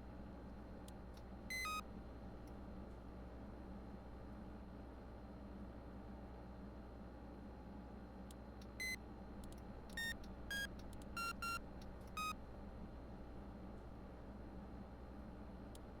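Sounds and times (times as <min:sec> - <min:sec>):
short electronic beeps: 0:10.0 - 0:11.6, 0:12.2 - 0:12.4.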